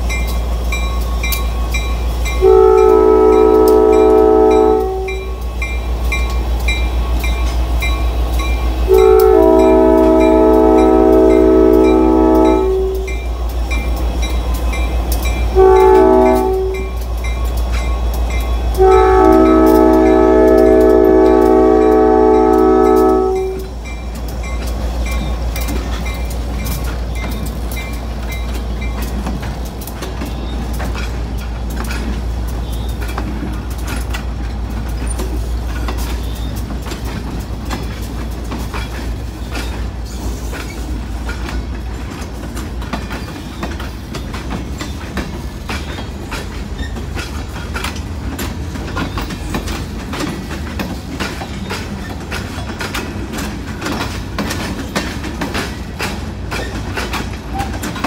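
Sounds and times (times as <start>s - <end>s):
diesel locomotive engine rumble: 0.0s - 58.0s
wheels clacking over rail joints: 0.0s - 58.0s.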